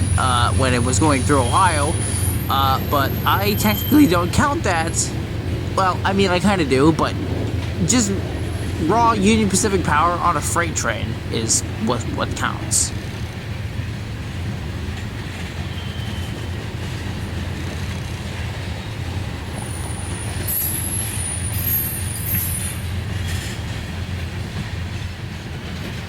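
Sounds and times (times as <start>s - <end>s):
high-pitched wheel squeals: 0.0s - 4.9s, 15.5s - 17.3s, 19.6s - 23.7s
train wheels rumbling on rail: 0.0s - 26.0s.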